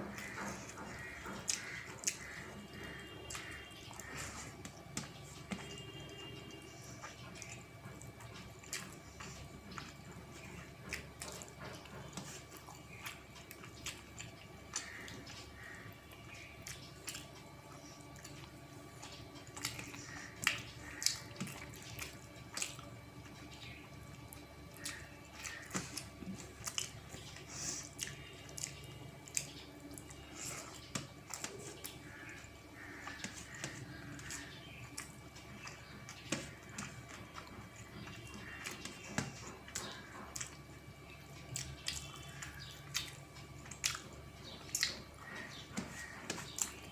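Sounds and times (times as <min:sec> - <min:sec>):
wet chewing and lip smacks: 0:06.8 - 0:45.1.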